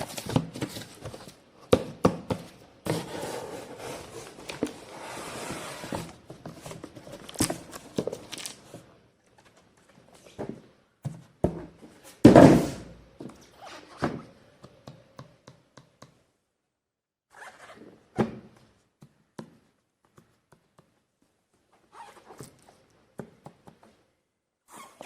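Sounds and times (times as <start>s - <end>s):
packaging rustling: 6.7s - 8.8s.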